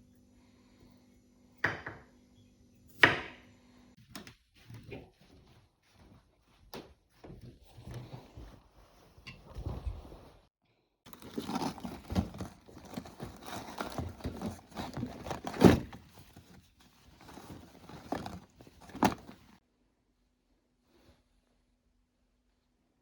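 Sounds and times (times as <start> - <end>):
objects knocking and tapping: 11.1 - 19.6.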